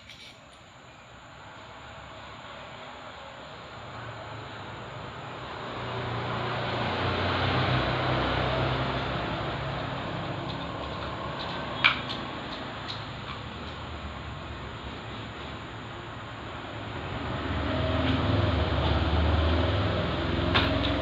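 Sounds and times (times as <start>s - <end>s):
vehicle engine running: 4.4s - 21.0s.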